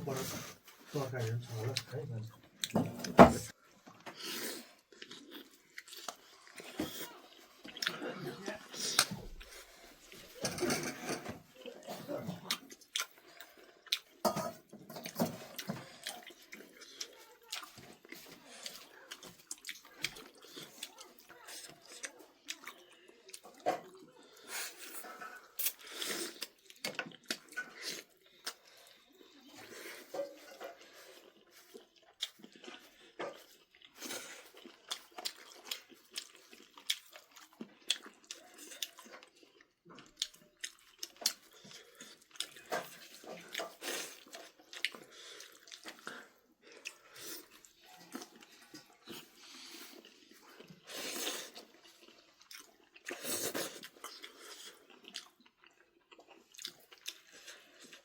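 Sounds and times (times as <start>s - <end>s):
dishes clicking and clattering: 2.6s - 3.5s, 10.2s - 11.5s, 14.2s - 16.0s, 42.6s - 43.8s
person chewing: 3.8s - 10.4s, 11.0s - 14.3s, 14.9s - 58.0s.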